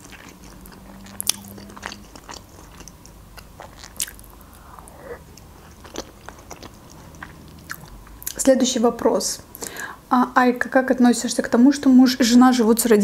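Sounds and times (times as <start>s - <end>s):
chewing soft food: 0.0s - 8.5s.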